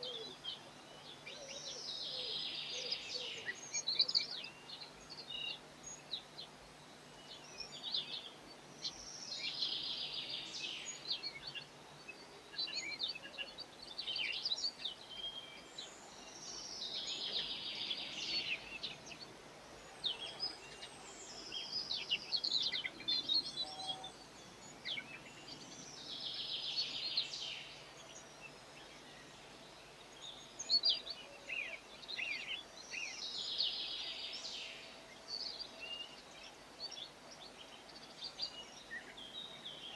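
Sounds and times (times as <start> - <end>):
small birds chirping: 0.0 - 39.9
songbird singing: 0.0 - 39.9.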